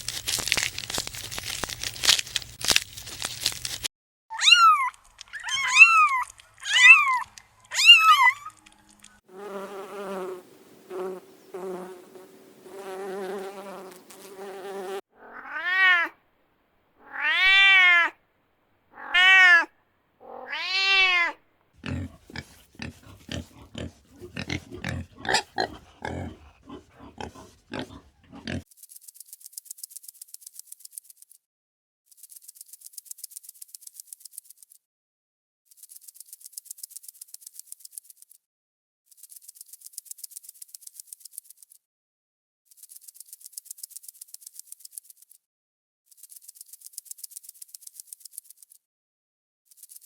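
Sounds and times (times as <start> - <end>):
high arched animal chirps: 4.3 - 8.6, 21.8 - 28.6
animal squeals: 4.3 - 8.7, 19.0 - 28.6
wavering trilling animal calls: 4.3 - 8.7, 19.0 - 28.6
rapid clicks and grunts: 21.8 - 28.7.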